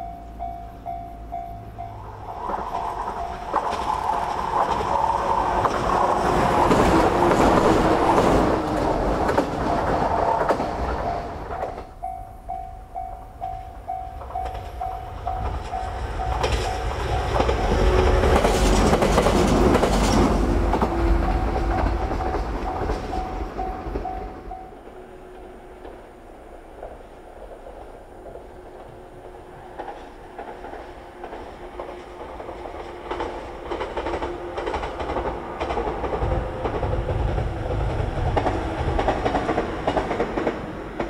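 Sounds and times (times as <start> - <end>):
steady pulsing beep: 0.0 - 3.7, 12.0 - 18.1, 22.6 - 24.9
train wheels clattering over rails: 2.0 - 12.1, 13.4 - 41.0.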